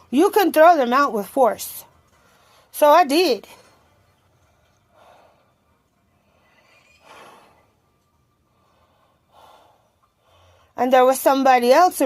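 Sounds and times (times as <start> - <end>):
woman breathing softly: 8.4 - 10.8.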